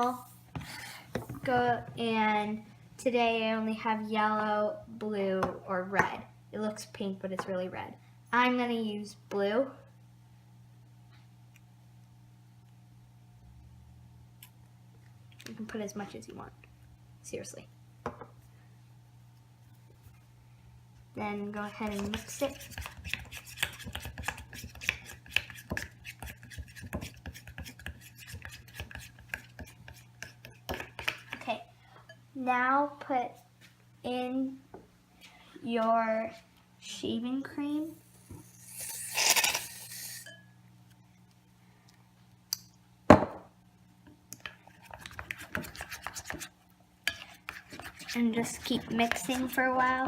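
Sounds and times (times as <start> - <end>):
utensil scraping a bowl: 21.6 - 31.4, 37.9 - 40.4, 44.6 - 49.6.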